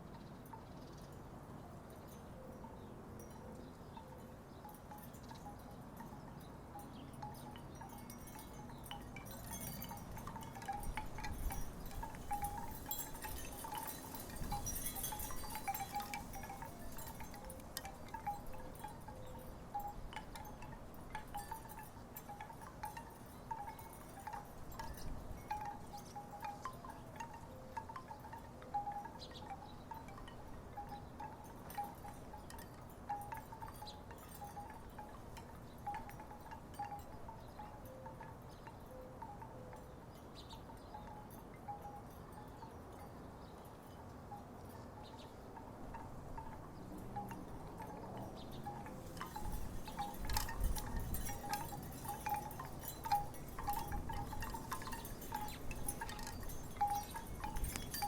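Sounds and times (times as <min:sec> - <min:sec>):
wind rumbling on microphone: 0:08.0 - 0:22.3, 0:45.0 - 0:58.0
wooden wind chimes knocking: 0:45.9 - 0:58.0.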